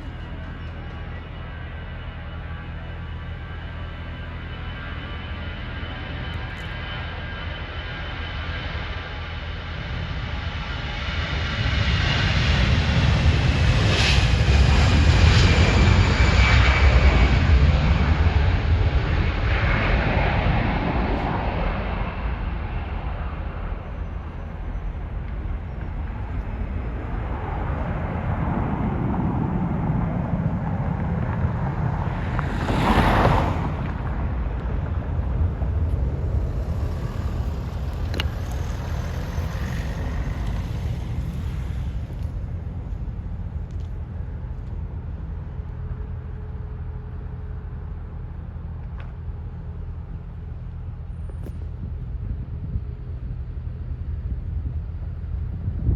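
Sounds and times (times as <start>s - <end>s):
jet engine rumble: 0.0s - 55.9s
wind buffeting microphone: 10.0s - 47.4s, 49.9s - 55.9s.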